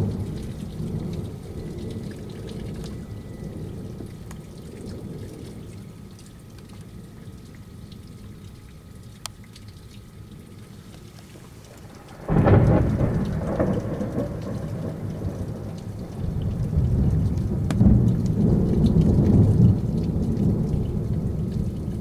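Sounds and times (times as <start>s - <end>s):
thunder rumble: 0.0s - 6.0s, 11.2s - 22.0s
dripping and trickling water: 0.0s - 22.0s
rain falling: 0.0s - 22.0s.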